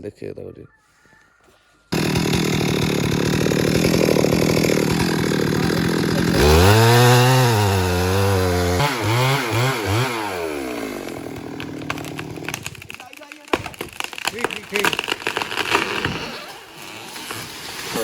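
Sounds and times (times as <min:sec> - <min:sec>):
chainsaw revving: 0:02.0 - 0:18.0.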